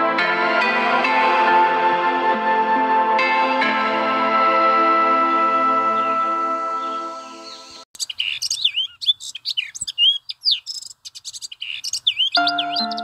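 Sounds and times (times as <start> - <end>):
background music: 0.0 - 7.8, 12.4 - 13.0
birds chirping and whistling: 5.9 - 13.0.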